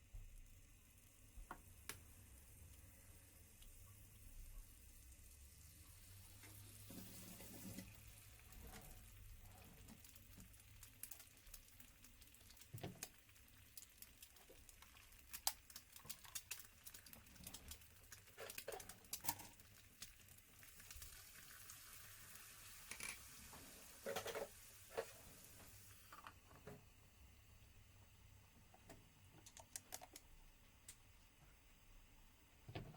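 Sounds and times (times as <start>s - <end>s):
small objects clicking: 29.4s - 30.3s.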